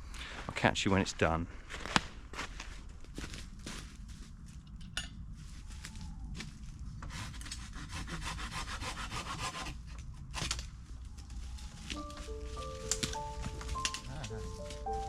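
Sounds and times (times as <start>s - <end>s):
hand saw cutting wood: 7.0s - 10.6s.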